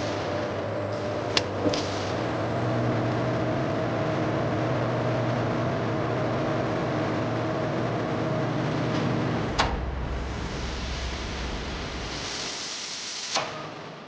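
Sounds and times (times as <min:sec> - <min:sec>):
factory machine hum and whirr: 0:00.0 - 0:14.0.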